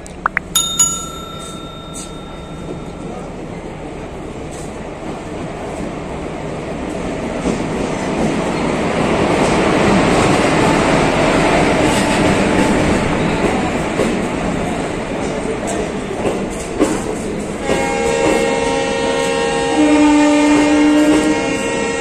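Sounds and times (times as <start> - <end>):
short chime: 0.6 - 3.3.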